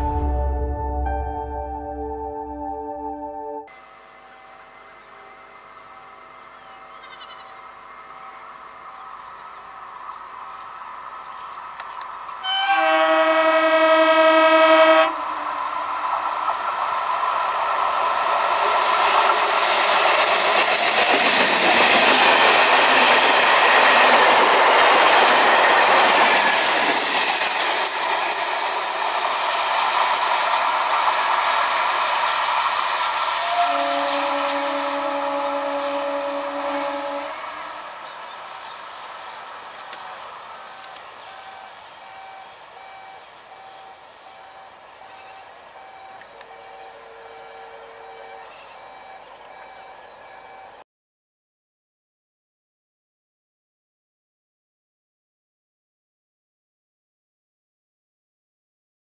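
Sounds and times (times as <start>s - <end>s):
train horn blast: 12.4s - 15.6s, 33.3s - 37.9s, 46.4s - 48.6s
train wheels on rails: 15.2s - 50.8s.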